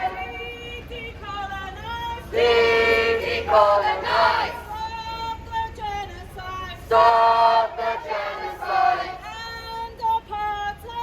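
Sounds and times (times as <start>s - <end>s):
crowd chanting: 0.0s - 0.4s, 2.3s - 4.7s, 6.9s - 9.4s.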